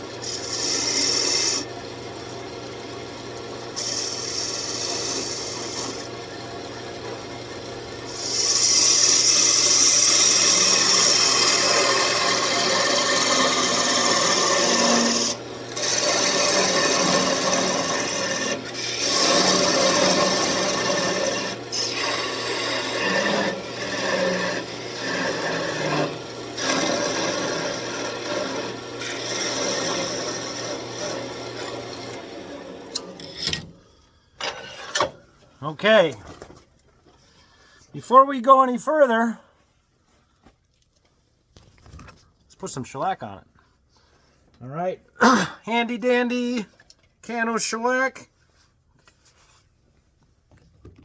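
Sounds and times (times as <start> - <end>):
lathe motor hum: 0.0 - 33.4
sandpaper rasping on spinning wood: 0.2 - 1.6, 3.8 - 6.0, 8.1 - 31.8.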